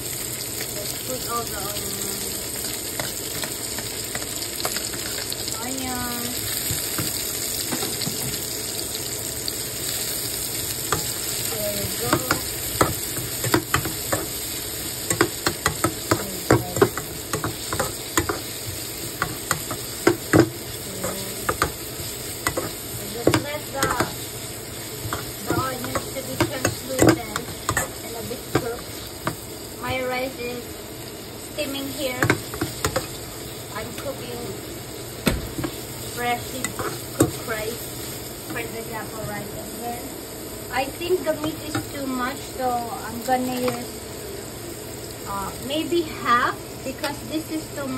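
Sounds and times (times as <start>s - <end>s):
onions sizzling in oil: 0.0s - 47.9s
spatula scraping a pan: 10.8s - 29.4s, 35.6s - 37.5s.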